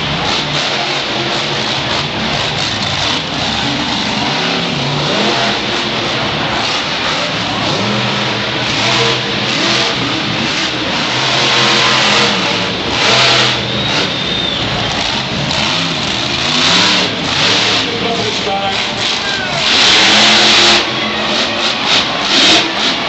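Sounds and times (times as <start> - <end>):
truck engine revving: 0.0 - 23.0.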